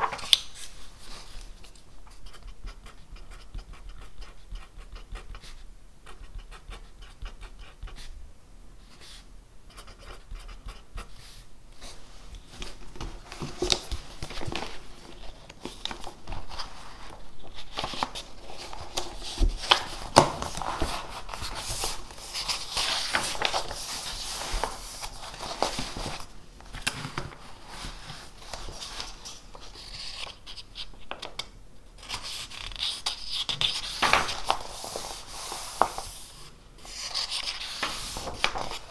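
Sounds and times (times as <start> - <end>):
pen scratching on paper: 2.1 - 8.1.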